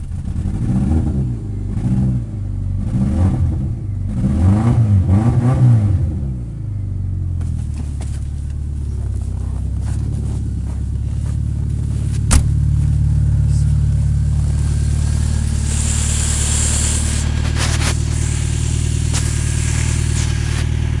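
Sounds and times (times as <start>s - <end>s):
car engine idling: 0.0s - 4.3s, 6.3s - 21.0s
sharp exhaust crack: 12.1s - 21.0s.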